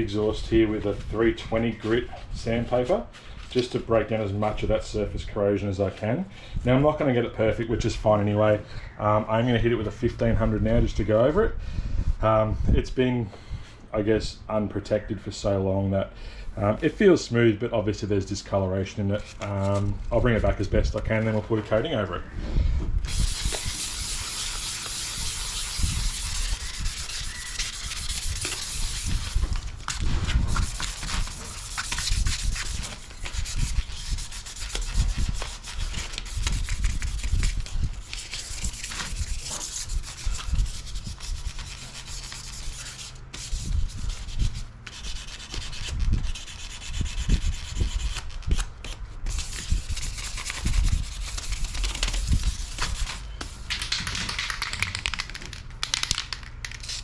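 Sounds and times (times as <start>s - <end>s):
sandpaper scratching on metal: 23.1s - 29.6s, 30.3s - 48.3s, 49.3s - 53.2s, 56.8s - 57.0s.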